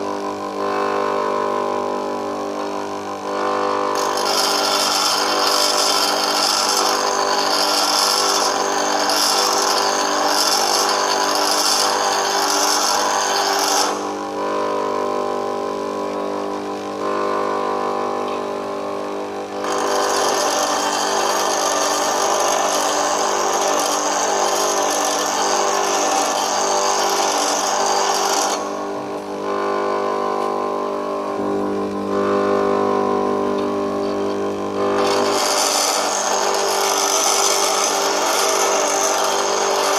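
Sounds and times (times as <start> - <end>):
bench grinder motor hum: 0.0 - 39.9
tool bit grinding hiss: 3.9 - 14.1, 19.6 - 28.9, 34.0 - 39.9.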